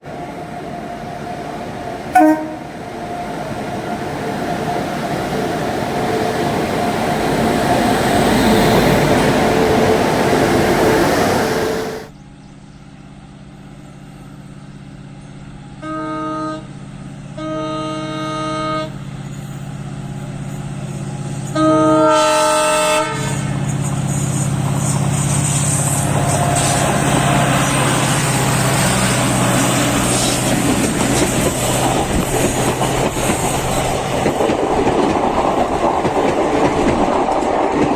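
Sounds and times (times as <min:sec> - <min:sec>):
diesel locomotive running: 0:00.0 - 0:37.9
train rumbling past: 0:00.0 - 0:37.9
locomotive horn blasts: 0:02.1 - 0:02.9, 0:15.8 - 0:19.0, 0:21.5 - 0:23.5
train wheels clattering: 0:23.6 - 0:37.9.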